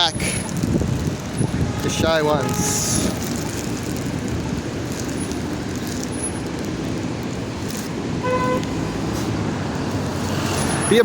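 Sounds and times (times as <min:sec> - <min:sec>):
road traffic noise: 0:00.0 - 0:11.0
car horn toot: 0:01.4 - 0:03.2, 0:08.2 - 0:08.8.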